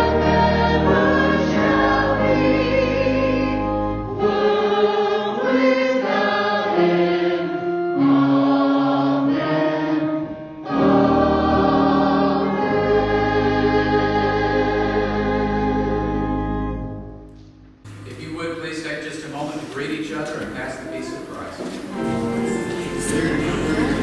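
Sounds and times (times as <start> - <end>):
church choir singing: 0.0 - 17.2, 17.9 - 24.0
sustained instrumental accompaniment: 17.9 - 24.0.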